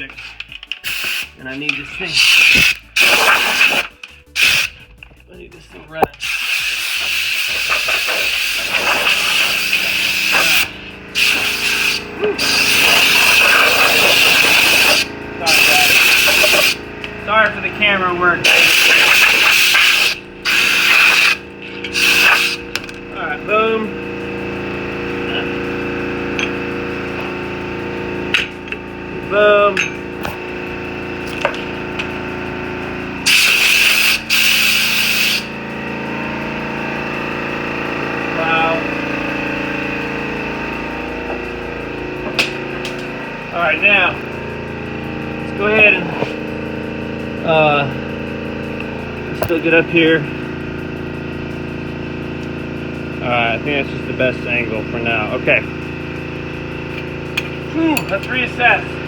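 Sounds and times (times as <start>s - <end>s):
pneumatic tool hissing whine: 0.0s - 5.2s, 6.0s - 59.0s
steady machine hum: 0.0s - 59.0s
loud hissing bursts: 0.8s - 4.8s, 6.2s - 16.8s, 18.4s - 22.7s, 33.2s - 35.5s.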